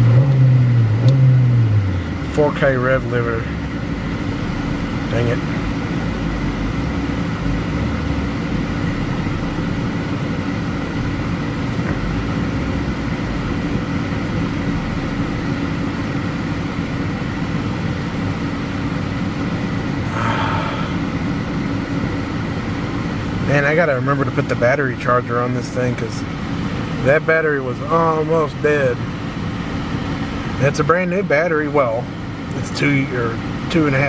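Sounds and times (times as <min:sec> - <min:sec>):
car engine idling: 0:00.0 - 0:34.0
heater blower running: 0:01.8 - 0:34.0.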